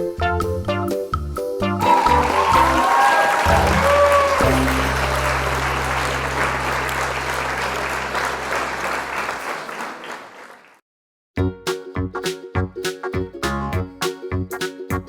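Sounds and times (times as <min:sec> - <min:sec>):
applause: 0:01.8 - 0:10.8
background music low note: 0:03.6 - 0:08.5.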